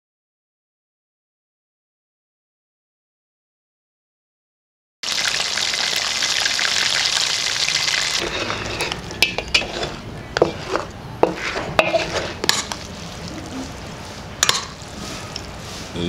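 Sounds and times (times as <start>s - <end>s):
chicken deep-frying in oil: 5.0s - 9.3s
utensils clicking and scraping a pan: 8.2s - 15.9s.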